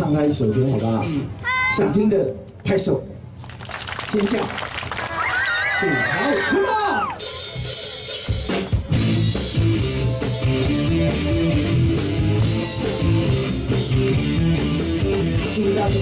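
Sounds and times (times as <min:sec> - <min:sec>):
bass guitar: 0:07.2 - 0:16.0
drum kit: 0:07.2 - 0:16.0
electric guitar: 0:07.3 - 0:16.0.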